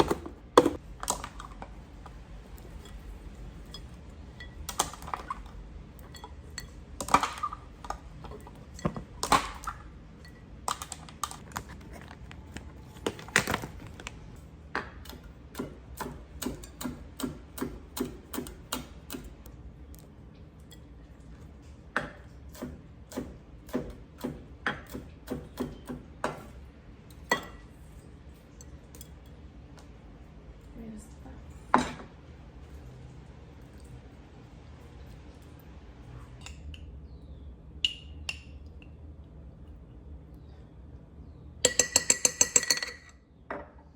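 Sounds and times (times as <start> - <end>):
food containers clicking and knocking: 0.0 - 2.2, 10.7 - 14.2, 41.6 - 43.1.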